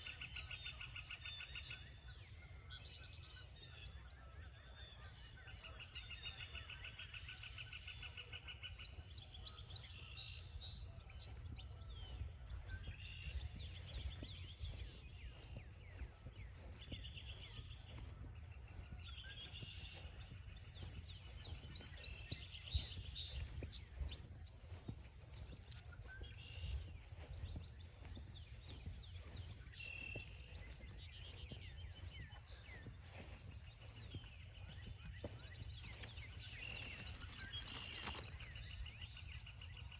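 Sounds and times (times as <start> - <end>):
songbirds singing: 0.0 - 39.9
footsteps on a trail: 8.9 - 39.9.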